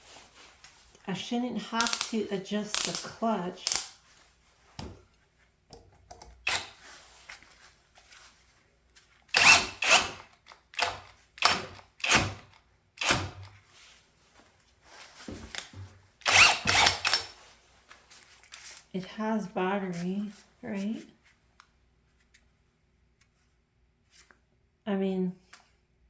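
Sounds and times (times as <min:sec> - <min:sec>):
cordless drill bursts: 0:06.4 - 0:06.8, 0:09.3 - 0:13.4, 0:16.2 - 0:17.4.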